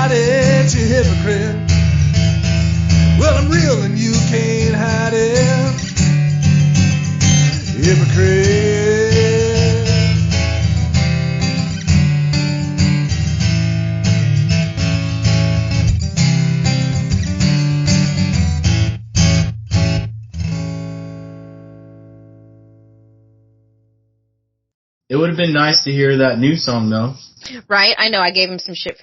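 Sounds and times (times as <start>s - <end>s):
band playing guitars and bass: 0.0s - 21.0s.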